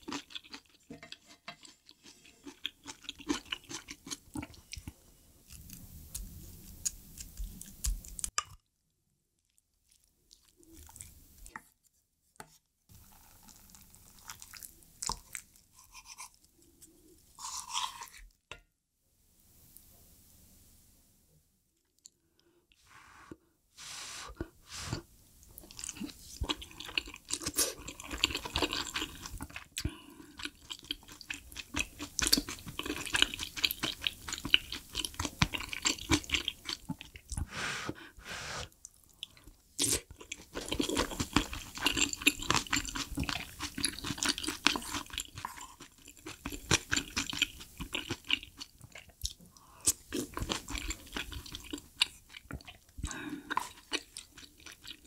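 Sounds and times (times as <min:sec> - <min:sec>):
person chewing food: 0:00.0 - 0:08.4, 0:09.4 - 0:11.6, 0:13.0 - 0:18.4, 0:24.4 - 0:55.0.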